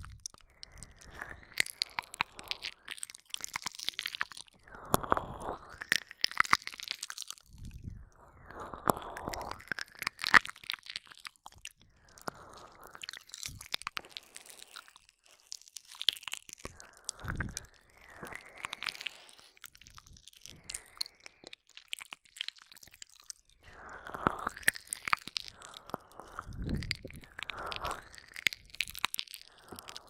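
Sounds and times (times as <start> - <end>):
wet mouth licking and smacking: 0.0 - 30.0
soft breathing: 0.4 - 3.1, 11.8 - 15.4, 16.6 - 21.6, 23.6 - 30.0.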